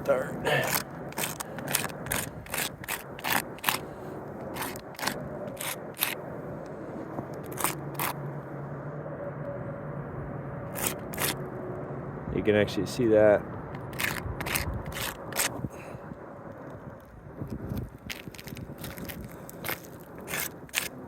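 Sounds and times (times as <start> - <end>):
chalk scraping on shingles: 0.5 - 6.2, 6.8 - 8.2, 10.7 - 11.4, 13.9 - 15.6, 17.5 - 21.0.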